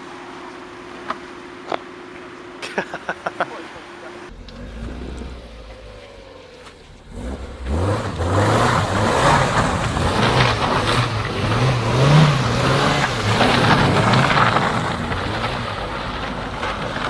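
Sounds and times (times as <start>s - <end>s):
car engine revving hard: 4.3s - 17.0s.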